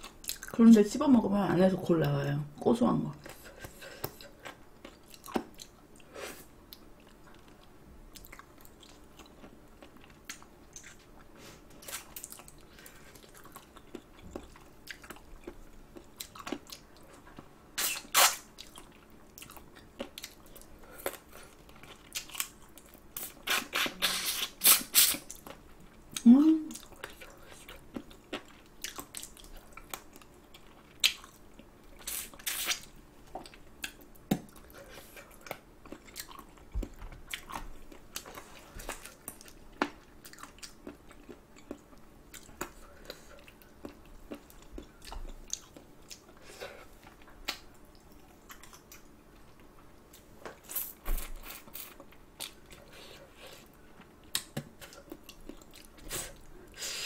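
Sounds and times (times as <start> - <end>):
close chewing and biting: 33.4 - 49.8.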